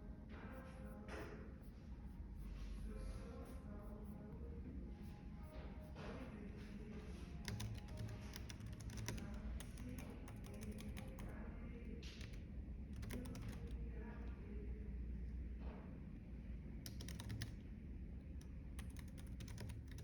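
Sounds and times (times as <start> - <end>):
typing on computer keyboard: 7.4 - 11.4, 12.0 - 13.8, 16.9 - 17.6, 18.7 - 20.0.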